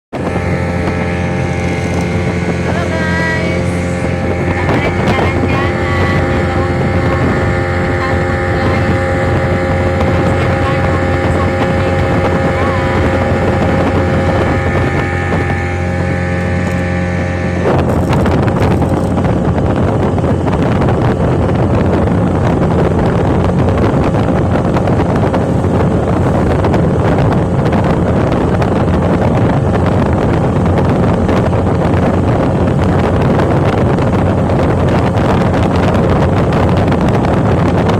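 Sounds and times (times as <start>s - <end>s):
vehicle engine running: 0.0s - 19.6s, 23.2s - 27.8s
loud rushing noise: 0.1s - 11.0s.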